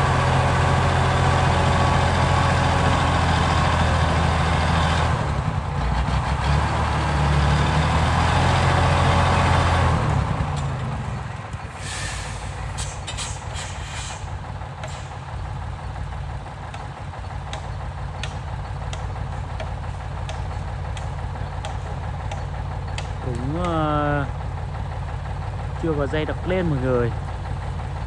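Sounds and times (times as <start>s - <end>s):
truck diesel engine idling: 0.0s - 28.0s
air brakes hissing: 11.7s - 15.3s.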